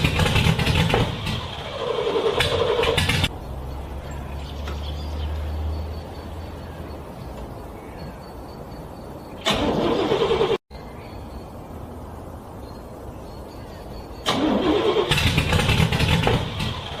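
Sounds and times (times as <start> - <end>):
car engine cranking: 0.0 - 3.8, 9.4 - 10.6, 14.2 - 17.0.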